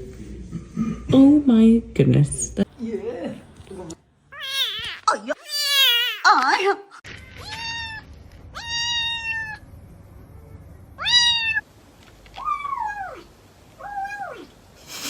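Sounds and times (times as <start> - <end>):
kitten meowing: 4.4 - 6.2, 7.4 - 8.0, 8.6 - 9.6.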